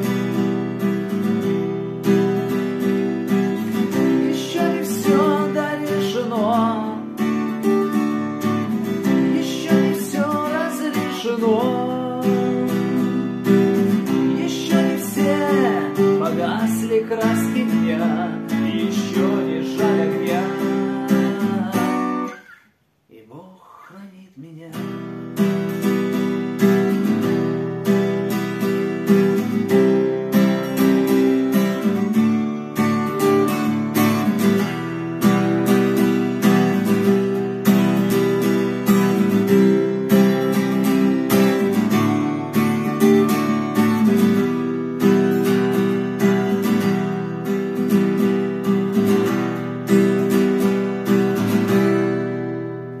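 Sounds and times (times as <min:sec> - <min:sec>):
acoustic guitar strumming: 0:00.0 - 0:22.7, 0:24.6 - 0:53.0.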